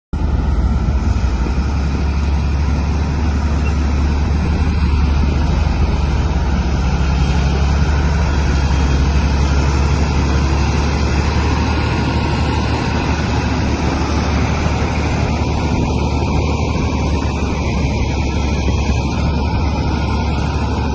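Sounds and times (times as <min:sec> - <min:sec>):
diesel engine rumbling: 0:00.1 - 0:20.9.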